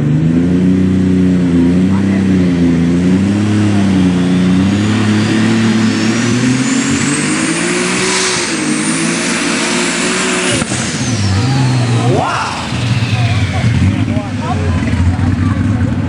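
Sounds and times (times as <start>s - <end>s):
tractor engine at full throttle: 0.0s - 16.0s
turbo whine: 3.6s - 15.1s.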